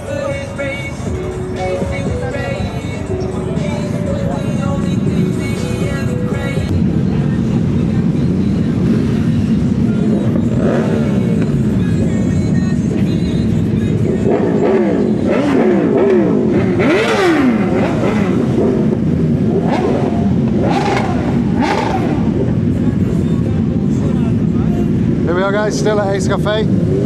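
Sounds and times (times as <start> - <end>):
background music: 0.0 - 18.7
motorcycle engines revving: 0.0 - 27.0.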